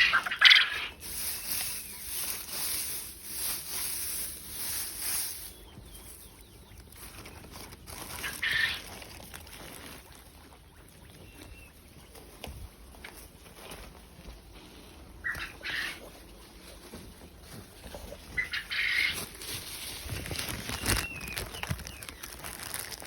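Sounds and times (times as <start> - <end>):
poultry calling: 0.0 - 12.2, 15.1 - 16.4, 17.8 - 19.6.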